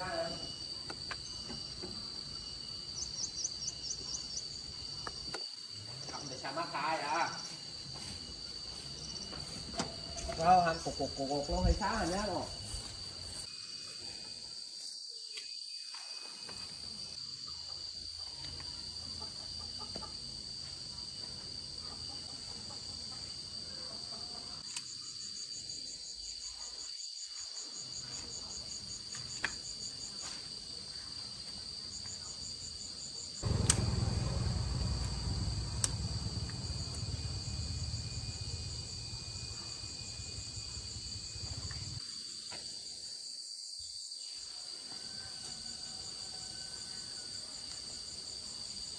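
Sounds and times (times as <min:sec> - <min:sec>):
high insect drone: 0:00.0 - 0:48.9
insects chirping: 0:00.0 - 0:48.9
click: 0:24.6 - 0:24.9, 0:33.5 - 0:34.0, 0:35.8 - 0:36.6
low rumble: 0:33.4 - 0:42.0.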